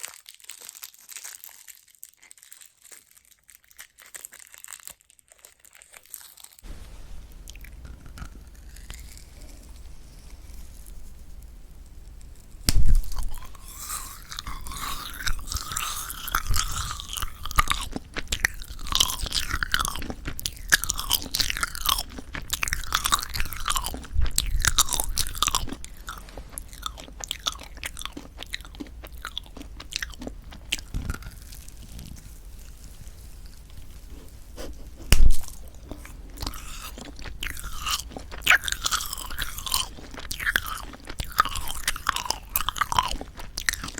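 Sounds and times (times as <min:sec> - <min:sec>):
loud bite: 0:12.6 - 0:32.0, 0:34.2 - 0:43.9
sticky squeaky chewing: 0:13.2 - 0:32.1, 0:34.1 - 0:43.9.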